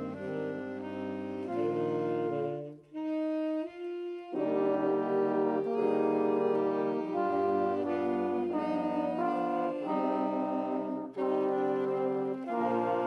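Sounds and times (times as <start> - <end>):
school band playing held chords: 0.0 - 2.7, 4.3 - 13.0
trombones and horns: 0.0 - 13.0.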